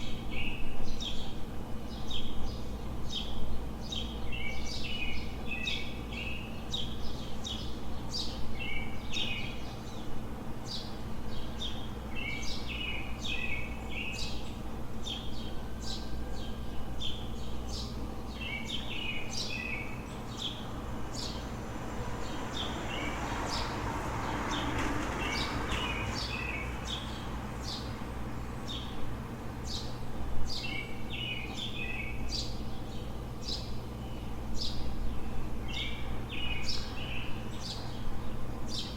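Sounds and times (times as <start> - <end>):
low city hum: 0.0 - 38.9
songbirds chirping: 0.0 - 38.9
vehicle passing: 20.6 - 28.3.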